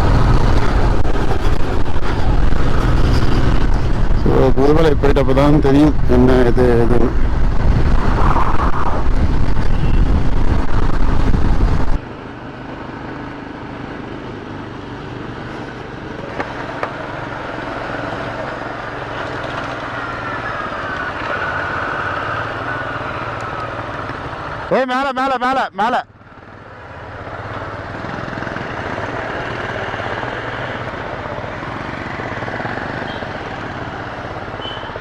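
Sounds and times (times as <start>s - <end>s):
wind noise on microphone: 0.0s - 12.0s
motorcycle riding: 0.0s - 35.0s.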